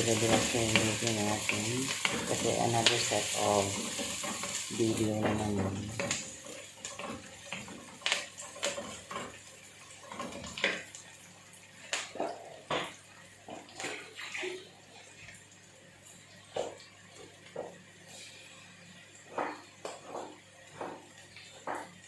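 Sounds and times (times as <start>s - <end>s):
onions sizzling in a pan: 0.0s - 14.2s
utensil stirring clicks and scrapes: 3.7s - 4.7s, 6.0s - 9.4s.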